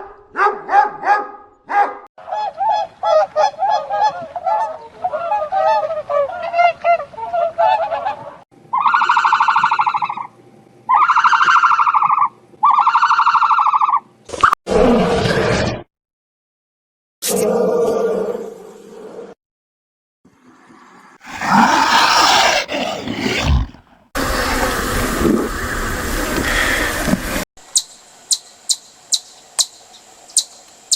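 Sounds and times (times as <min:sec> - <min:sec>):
dog barking: 0:00.0 - 0:02.1
loud animal call: 0:08.7 - 0:10.3, 0:10.9 - 0:14.1
long even animal calls: 0:08.7 - 0:14.1.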